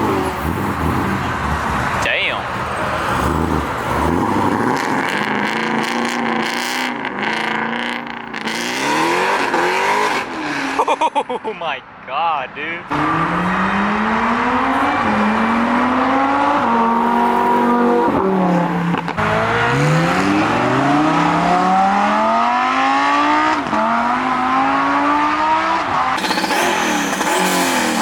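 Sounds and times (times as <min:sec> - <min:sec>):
car engine accelerating hard: 0:12.9 - 0:28.0.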